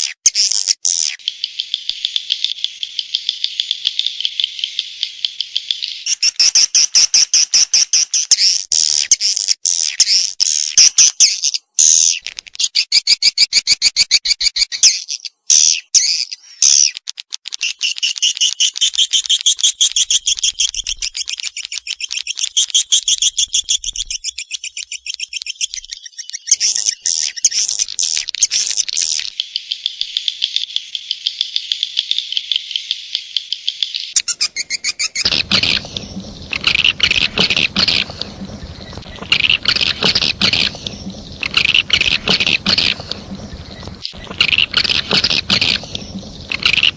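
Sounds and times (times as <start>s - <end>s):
swiftlet chirps and twitters: 35.3s - 46.9s.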